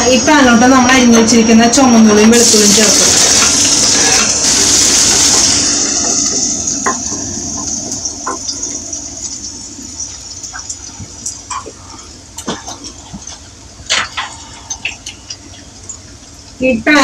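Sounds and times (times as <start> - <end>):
shallots sizzling in hot oil: 0.0 - 11.4
oil crackling and popping: 2.2 - 16.6.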